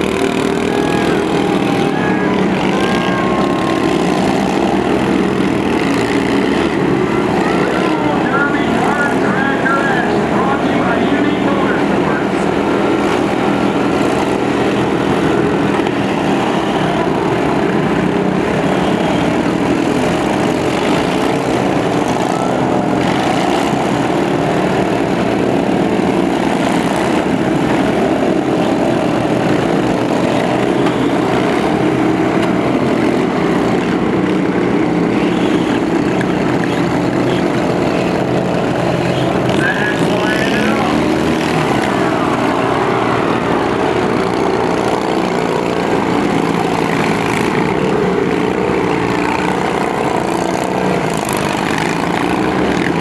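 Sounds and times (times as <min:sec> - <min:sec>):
lawn tractor engines running: 0:00.0 - 0:53.0.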